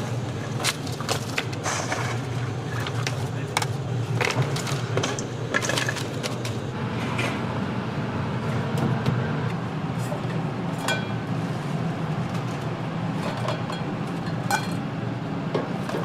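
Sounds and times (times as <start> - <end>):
steady kitchen hum: 0.0 - 16.0
utensils and dishes clinking: 10.1 - 11.3, 13.2 - 14.9.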